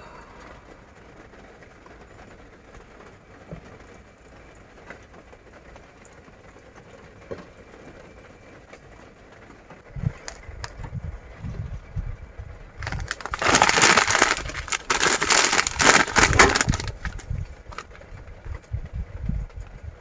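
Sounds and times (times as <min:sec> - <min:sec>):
rain falling: 0:00.0 - 0:11.4, 0:12.7 - 0:20.0
raindrop taps: 0:01.5 - 0:08.0.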